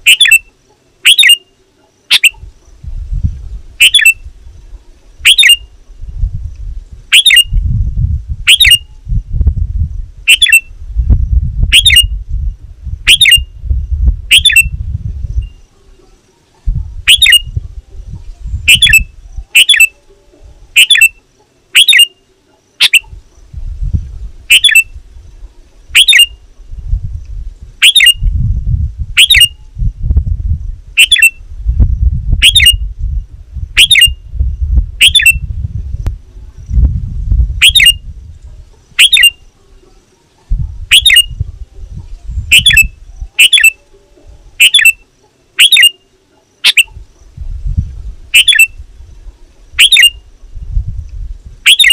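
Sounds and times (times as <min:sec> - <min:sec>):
bird giving short sharp calls: 0:00.0 - 0:01.5, 0:20.8 - 0:21.2
low rumble: 0:26.6 - 0:38.8.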